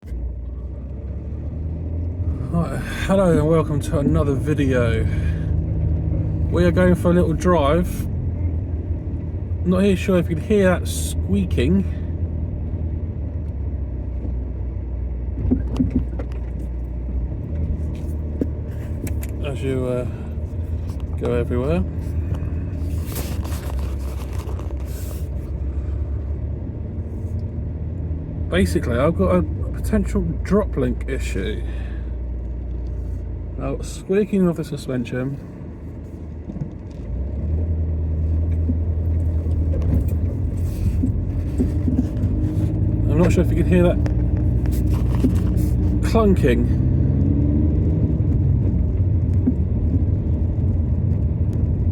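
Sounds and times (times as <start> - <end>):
road and engine rumble: 0.0 - 51.9
suspension clicks and squeaks: 15.3 - 19.5, 36.2 - 46.3, 48.3 - 51.7.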